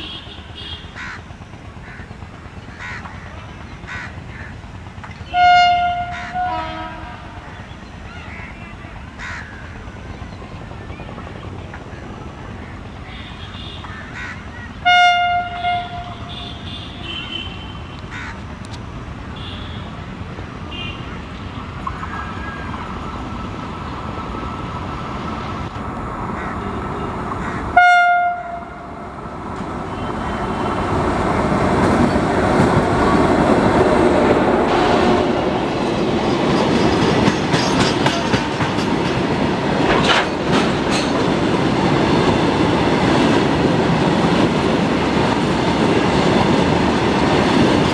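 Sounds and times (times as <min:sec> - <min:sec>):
train rumble and wheel clatter: 0:00.0 - 0:47.9
train horn blasts: 0:05.3 - 0:07.4, 0:14.8 - 0:17.9, 0:27.8 - 0:28.9.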